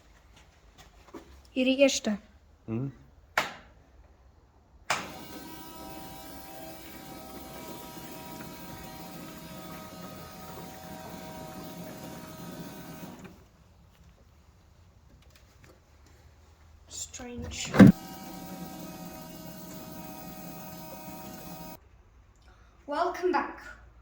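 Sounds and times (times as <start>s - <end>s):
electric fuel pump humming: 4.9s - 13.5s, 17.5s - 21.8s.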